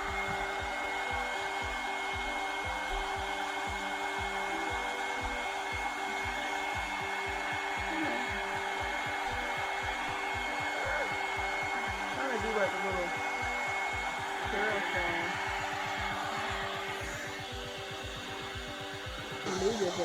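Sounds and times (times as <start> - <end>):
hair dryer blowing: 0.0 - 20.0.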